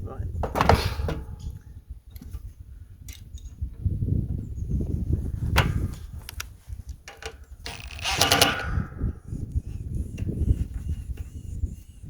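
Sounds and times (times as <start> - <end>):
metallic rattle: 7.7 - 8.7
sharp click: 7.7 - 8.7.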